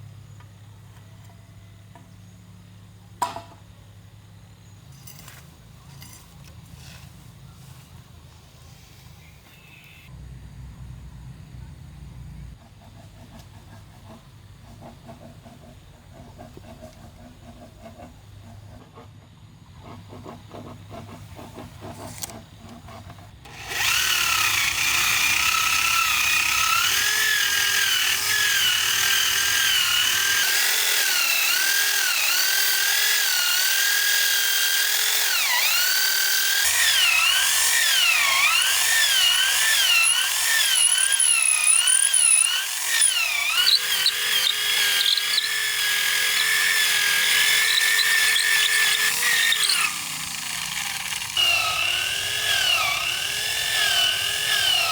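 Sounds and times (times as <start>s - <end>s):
electric drill boring into bamboo: 23.4s - 54.9s.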